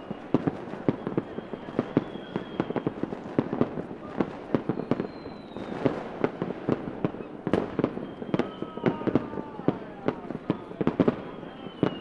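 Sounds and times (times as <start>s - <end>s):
thin high whistle: 0.0s - 3.0s, 4.7s - 5.8s, 7.2s - 9.4s, 10.4s - 12.0s
fireworks bangs and pops: 0.0s - 12.0s.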